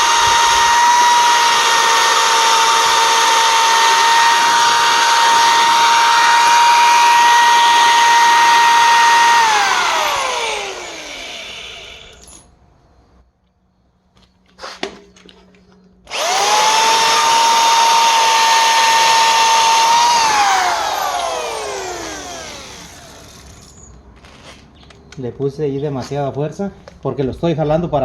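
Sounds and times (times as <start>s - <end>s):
electric drill whining: 0.0s - 12.3s, 16.1s - 23.9s.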